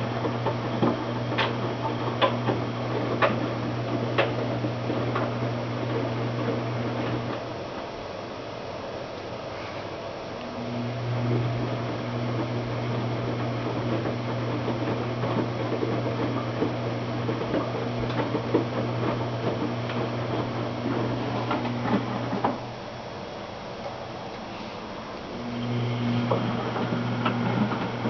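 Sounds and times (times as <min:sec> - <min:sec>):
knocks and clicks of tumbling load: 0:00.0 - 0:07.9, 0:11.2 - 0:22.7, 0:25.5 - 0:28.0
washing machine motor hum: 0:00.0 - 0:09.4, 0:10.0 - 0:28.0.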